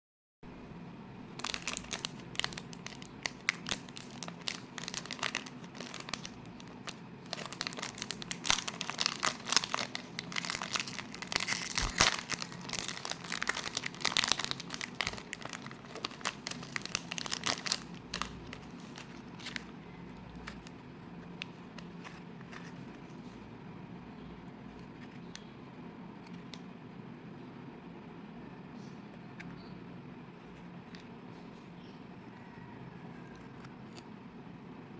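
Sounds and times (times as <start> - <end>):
plastic wrapper crinkling: 1.3 - 23.4.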